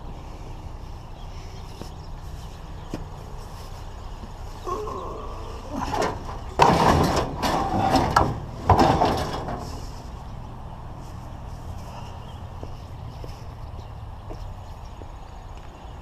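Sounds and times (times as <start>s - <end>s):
metal parts scraping and rattling: 5.7s - 10.2s.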